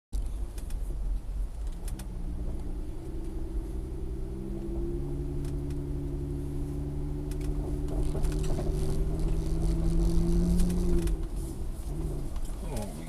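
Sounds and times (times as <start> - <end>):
vehicle engine drone and road noise: 0.2 - 13.0.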